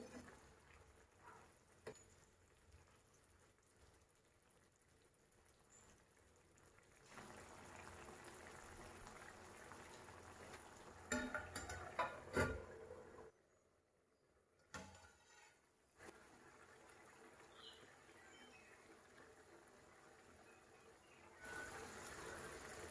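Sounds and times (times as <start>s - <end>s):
food cooking in a pan: 0.0s - 13.3s, 14.7s - 22.9s
utensil clinking against pan: 11.1s - 12.6s.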